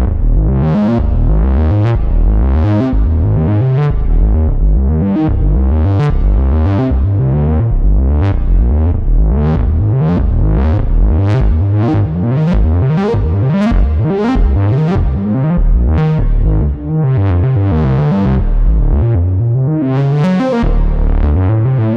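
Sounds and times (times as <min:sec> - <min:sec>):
plucky synthesizer notes: 0:00.0 - 0:21.9.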